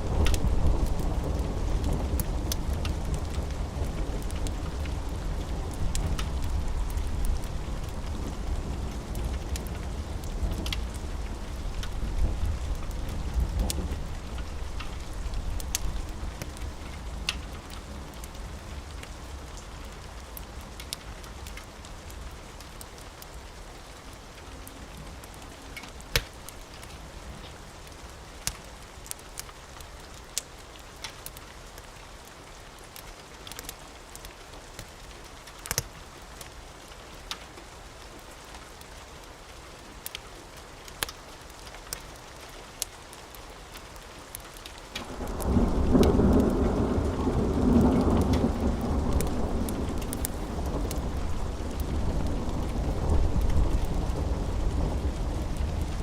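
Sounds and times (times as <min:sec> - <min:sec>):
low rumble of thunder: 0:00.0 - 0:19.2, 0:45.0 - 0:56.0
steady rain: 0:00.0 - 0:56.0
wood fire crackling: 0:00.0 - 0:56.0.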